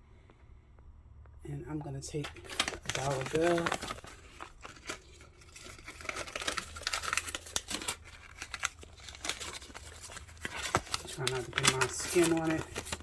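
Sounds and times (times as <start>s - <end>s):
paper bill rustling and crinkling: 1.8s - 13.0s.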